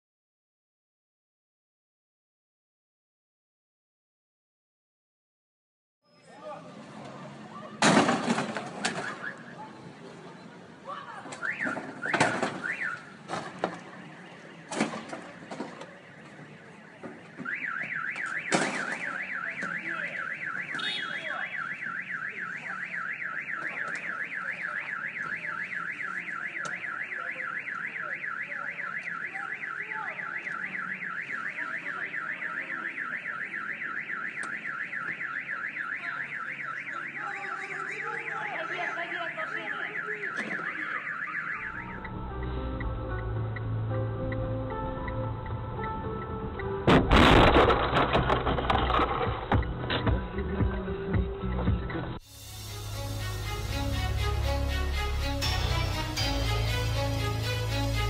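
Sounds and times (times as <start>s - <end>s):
car alarm wailing: 8.8s - 9.8s, 11.4s - 13.2s, 17.4s - 46.4s.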